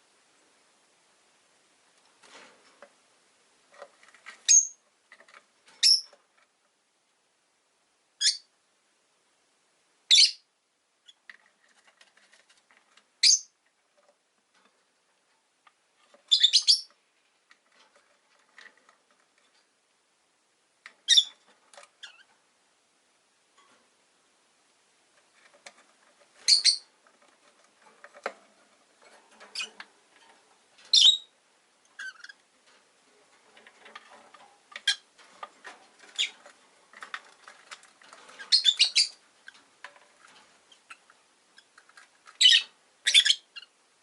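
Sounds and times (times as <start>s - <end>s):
lovebirds chirping: 4.4s - 4.8s, 5.8s - 6.2s, 8.2s - 8.5s, 10.1s - 11.2s, 13.2s - 13.6s, 16.2s - 17.0s, 21.0s - 21.4s, 26.4s - 26.9s, 30.9s - 32.4s, 38.3s - 39.6s, 42.4s - 43.8s.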